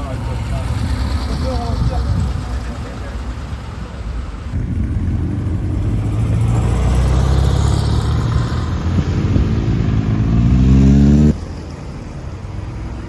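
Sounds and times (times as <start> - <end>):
sports car engine accelerating: 4.5 - 11.6.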